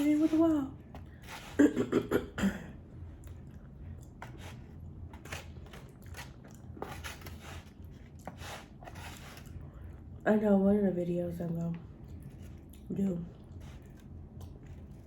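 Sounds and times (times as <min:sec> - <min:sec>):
soft chewing: 0:02.8 - 0:10.2, 0:11.4 - 0:15.0.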